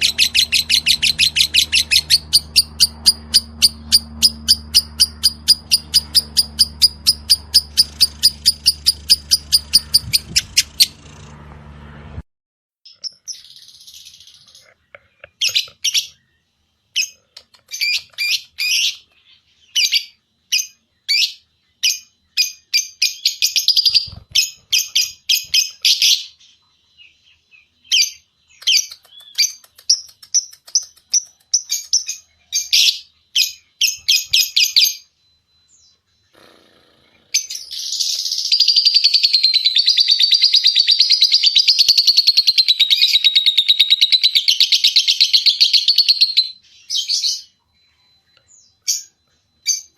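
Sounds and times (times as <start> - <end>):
lovebird chirping: 0.0 - 11.4, 12.9 - 49.9
lovebird fast trill: 0.0 - 11.5, 19.8 - 26.3, 37.4 - 47.6.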